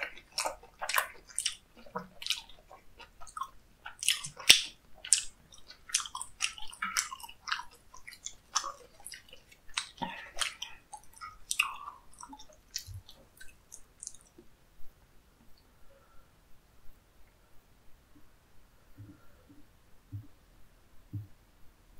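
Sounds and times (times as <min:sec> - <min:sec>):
wet sticky chewing: 0:00.0 - 0:14.4.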